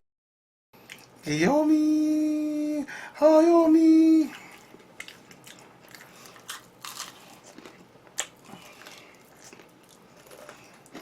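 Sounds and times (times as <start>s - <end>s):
person chewing crunchy food: 4.3s - 11.0s.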